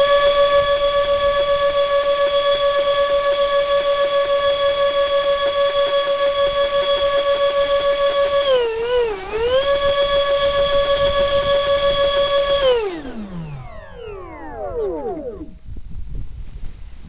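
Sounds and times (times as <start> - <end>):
electric ducted fan motors whining: 0.0 - 17.0.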